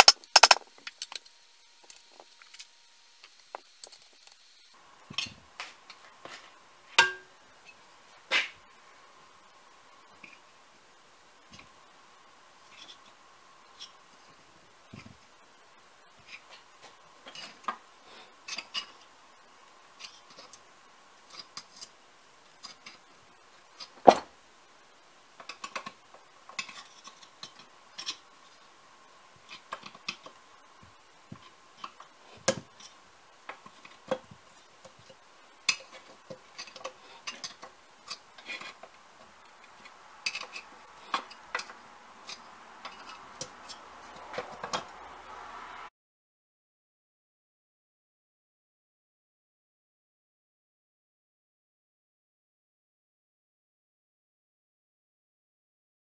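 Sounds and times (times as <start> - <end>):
metal parts clinking: 0.0 - 4.4
faint steady hum: 0.0 - 45.9.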